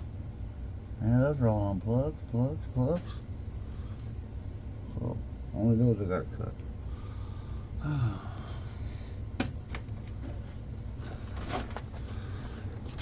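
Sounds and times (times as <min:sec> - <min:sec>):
wires rustling: 0:09.7 - 0:13.0.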